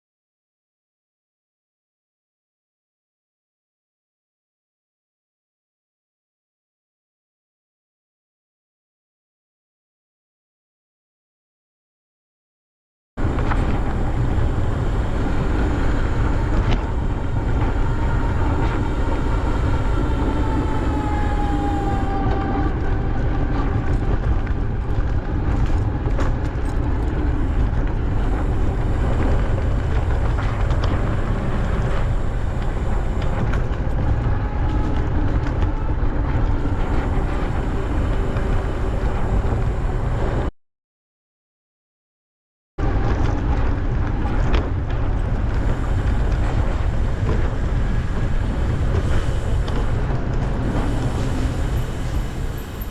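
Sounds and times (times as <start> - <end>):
wind buffeting microphone: 13.2 - 40.5, 42.8 - 52.9.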